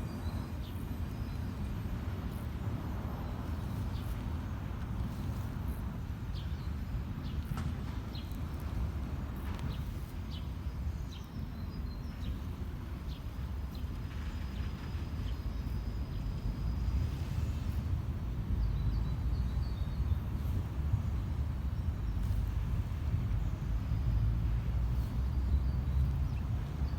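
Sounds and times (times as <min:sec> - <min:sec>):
sparrows chirping: 0:21.0 - 0:26.9.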